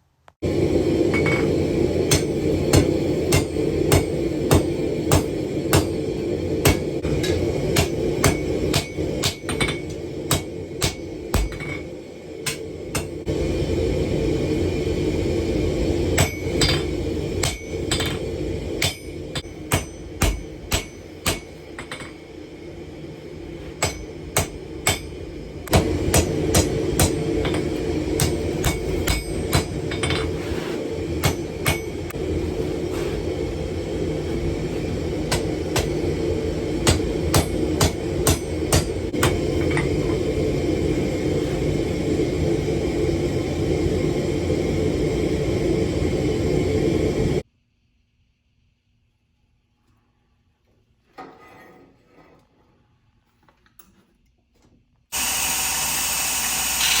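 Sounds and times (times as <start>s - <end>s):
hammer striking steel on anvil: 1.1s - 13.3s, 16.1s - 22.4s, 23.6s - 30.4s, 31.0s - 32.2s, 34.8s - 40.4s.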